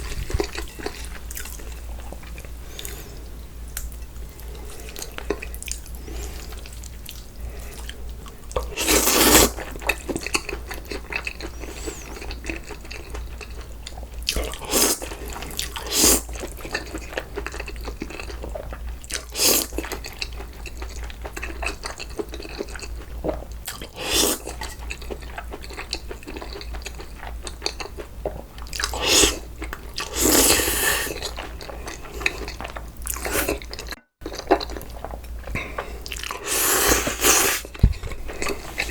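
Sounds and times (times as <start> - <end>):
wet chewing and crunching: 0.0 - 3.0, 3.7 - 38.9
loud noodle slurps: 8.8 - 9.6, 15.8 - 16.2, 24.0 - 24.5, 28.9 - 29.4, 30.0 - 31.3, 33.1 - 33.6, 36.3 - 37.7.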